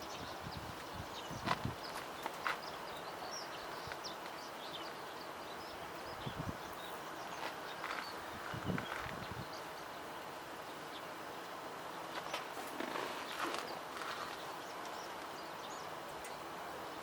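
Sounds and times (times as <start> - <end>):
outdoor background noise: 0.0 - 17.0
small birds chirping: 0.0 - 17.0.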